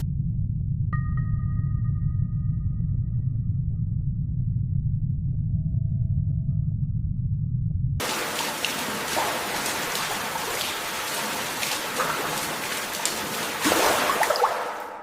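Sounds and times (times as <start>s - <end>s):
water splashing and spattering: 8.0s - 15.0s.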